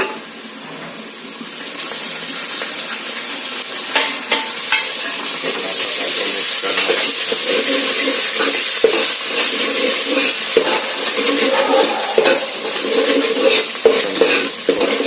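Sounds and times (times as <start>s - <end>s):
food sizzling in hot oil: 0.0s - 15.0s
spoon scraping pan: 6.7s - 15.0s.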